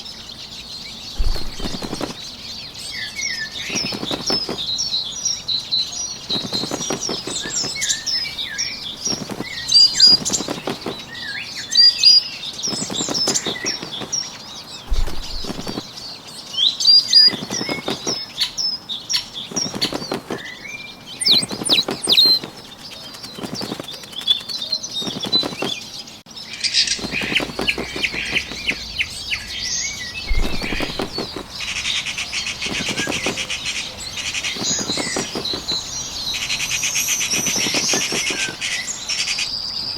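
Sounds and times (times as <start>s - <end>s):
small birds chirping: 0.0s - 39.9s
wing flapping: 1.1s - 16.1s, 16.9s - 26.1s, 26.8s - 39.3s
chatter of high bird calls: 16.8s - 39.7s.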